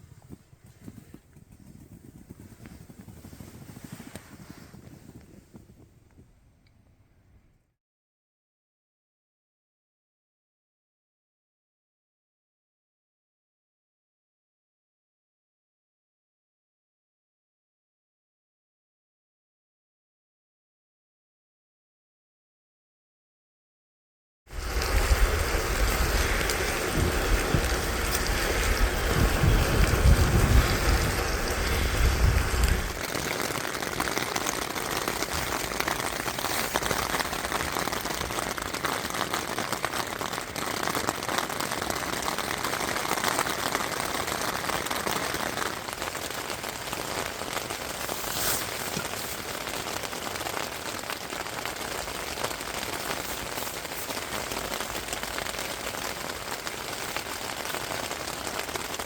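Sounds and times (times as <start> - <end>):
rain falling: 24.5 - 59.0
low rumble: 24.6 - 33.1.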